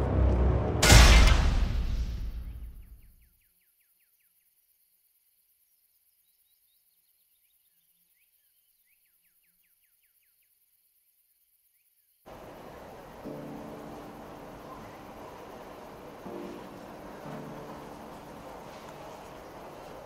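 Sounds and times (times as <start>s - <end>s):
bird chirping: 2.4s - 20.0s.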